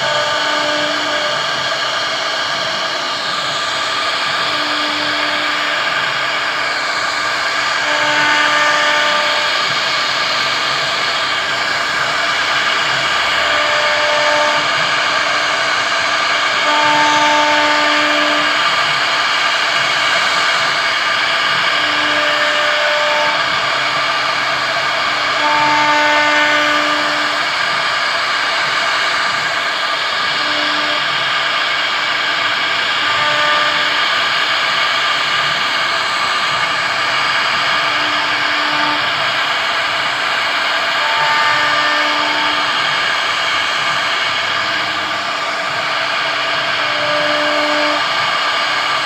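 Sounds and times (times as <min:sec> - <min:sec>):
humming tone: 0:00.0 - 0:34.4.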